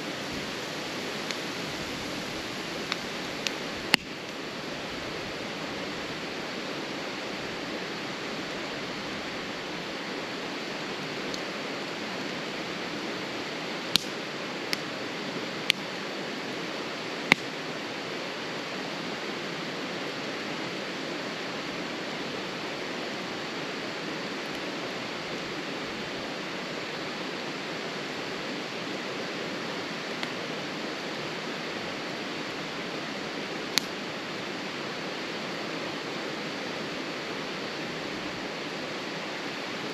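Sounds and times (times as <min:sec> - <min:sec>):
steady rushing hiss: 0:00.0 - 0:39.9
campfire crackling and popping: 0:00.2 - 0:04.9, 0:11.0 - 0:17.8, 0:24.4 - 0:26.0, 0:29.6 - 0:31.0, 0:33.4 - 0:34.4.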